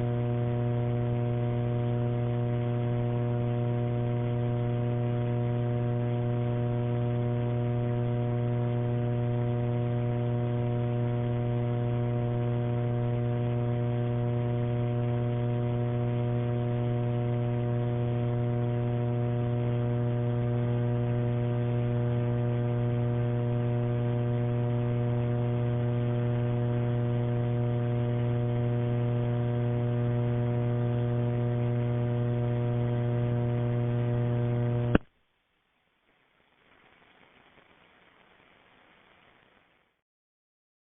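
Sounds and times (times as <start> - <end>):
electrical buzzing hum on phone line: 0.0 - 35.1.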